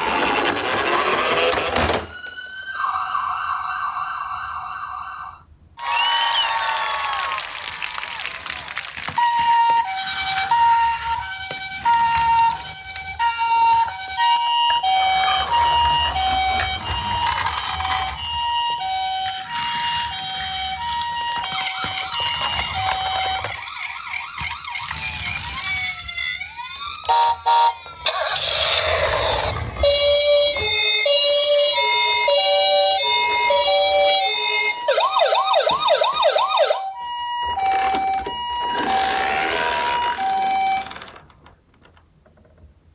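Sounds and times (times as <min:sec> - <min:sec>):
two-tone ambulance siren: 0:09.2 - 0:28.7, 0:29.8 - 0:41.0
second siren: 0:09.4 - 0:23.6, 0:29.8 - 0:40.9.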